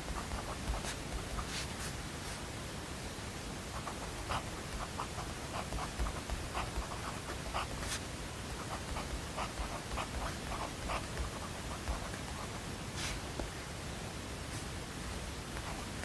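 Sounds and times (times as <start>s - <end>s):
pen scratching on paper: 0.0s - 2.4s, 3.7s - 13.3s
white-noise hiss: 0.0s - 16.0s.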